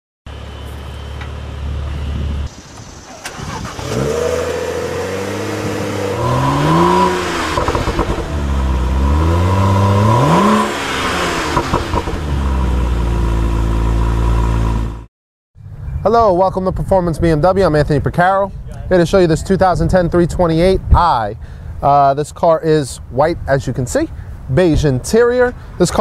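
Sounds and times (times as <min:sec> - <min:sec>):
car engine idling and revving: 0:00.3 - 0:16.0.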